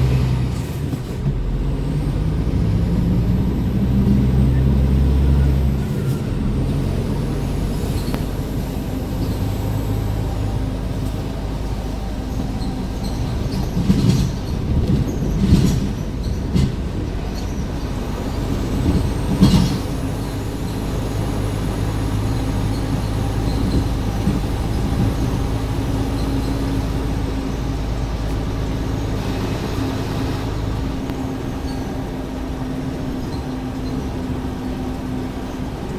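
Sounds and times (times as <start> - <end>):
truck engine running inside cab: 0.0 - 35.9
bumps and rattles: 10.9 - 32.2.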